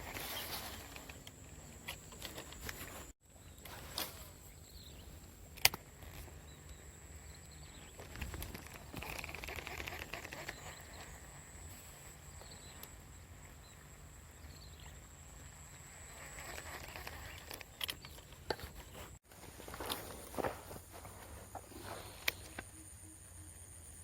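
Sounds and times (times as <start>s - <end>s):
rustling: 0.0s - 4.6s, 16.1s - 22.7s
high insect whine: 0.0s - 18.1s, 19.7s - 24.0s
faint bird chirps: 21.7s - 24.0s.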